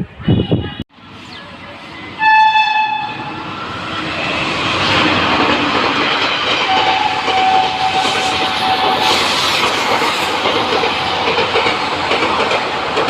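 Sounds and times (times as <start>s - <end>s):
train rumbling and clattering: 0.0s - 13.0s
locomotive horn blast: 2.2s - 3.4s.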